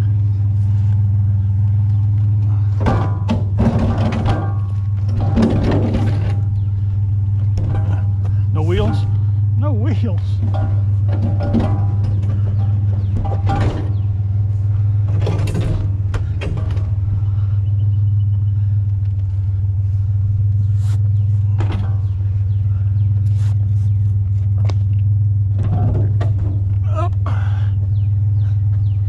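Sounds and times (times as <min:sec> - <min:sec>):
truck engine idling: 0:00.0 - 0:29.0
heavy freezer scraping and knocking: 0:02.4 - 0:18.2, 0:19.4 - 0:26.8.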